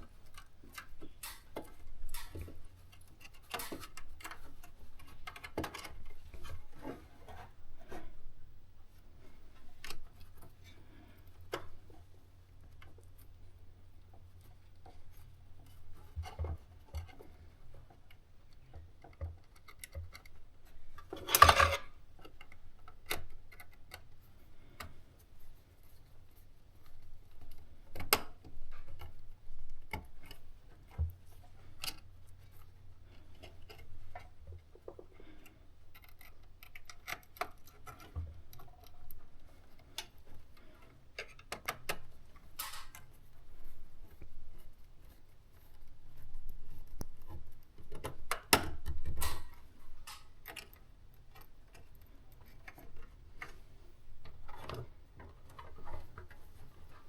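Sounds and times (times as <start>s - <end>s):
hands working with tools: 0.0s - 8.2s, 26.9s - 57.0s.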